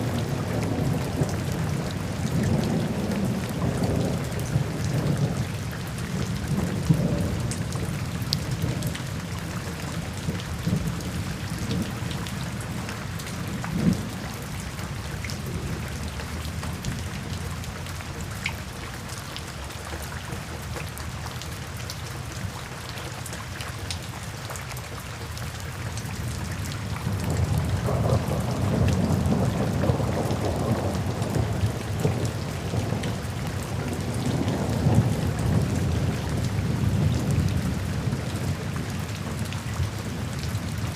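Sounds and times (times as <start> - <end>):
rain falling: 0.0 - 40.9
rolling thunder: 27.0 - 38.3.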